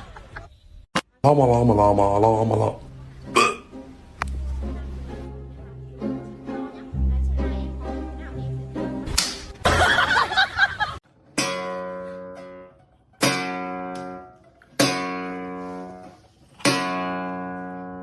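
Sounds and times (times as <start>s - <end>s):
guitar chords strummed: 11.4s - 15.7s, 16.6s - 18.0s.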